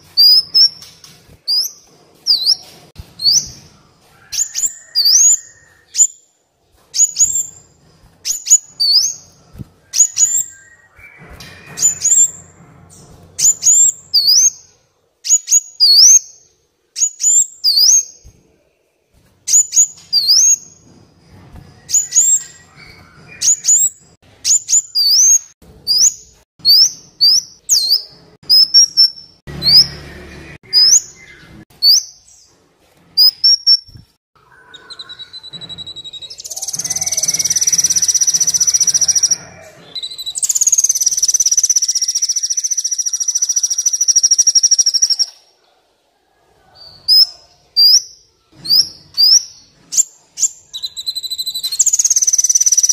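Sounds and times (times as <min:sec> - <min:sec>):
sunbird chirping: 0:33.2 - 0:45.4, 0:50.4 - 0:52.9.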